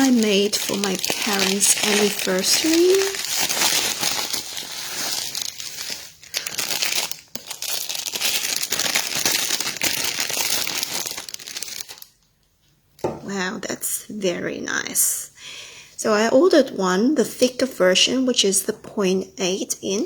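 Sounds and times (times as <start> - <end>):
wrapping tearing: 0.0 - 12.2
wrapping crinkling: 0.0 - 12.4.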